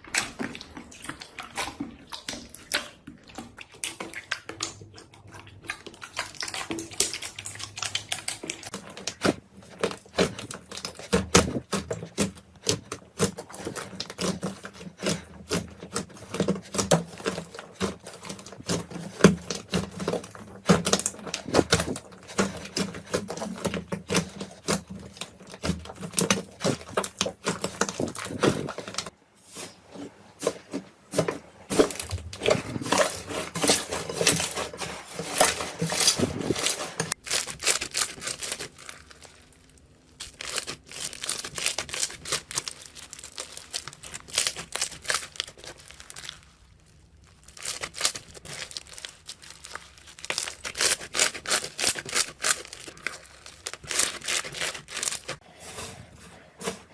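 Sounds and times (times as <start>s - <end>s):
slime crackling and popping: 31.7s - 55.4s.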